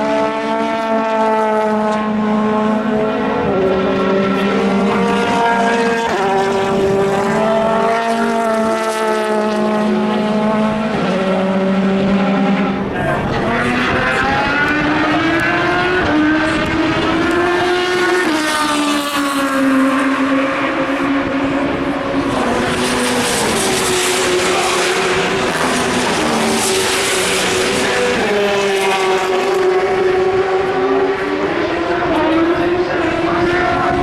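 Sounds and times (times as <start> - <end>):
racing car engines: 0.0 - 34.0.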